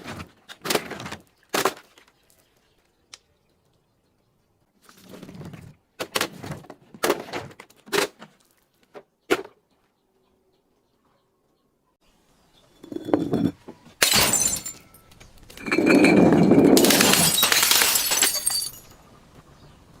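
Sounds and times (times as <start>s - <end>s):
glass crunching: 12.8s - 19.0s
glass shattering crack: 14.0s - 16.0s, 16.6s - 18.9s.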